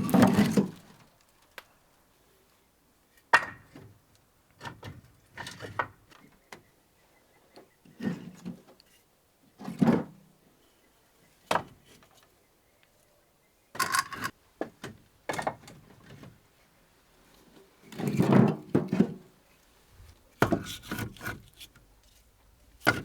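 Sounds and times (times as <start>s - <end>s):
wood scraping: 17.8s - 23.0s
firewood knocks and thuds: 20.4s - 21.4s.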